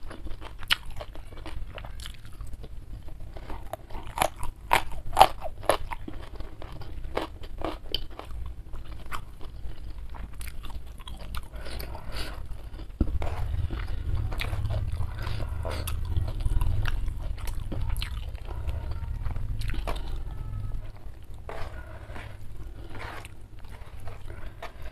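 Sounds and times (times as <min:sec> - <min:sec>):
crunchy chewing: 0:00.0 - 0:24.9
fingers mixing rice: 0:11.2 - 0:24.9
low rumble: 0:11.5 - 0:24.9.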